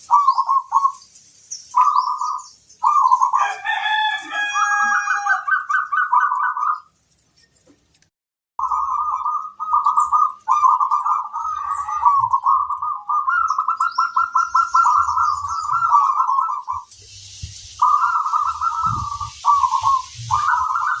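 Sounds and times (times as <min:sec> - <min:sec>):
dove cooing in trilled phrases: 0:00.0 - 0:01.0, 0:01.8 - 0:06.8, 0:08.6 - 0:16.9, 0:17.8 - 0:21.0
hiss: 0:16.8 - 0:21.0.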